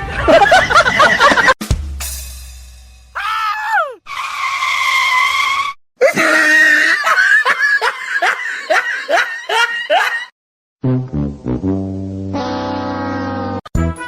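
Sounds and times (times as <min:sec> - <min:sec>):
high-pitched cries: 0:03.2 - 0:04.0.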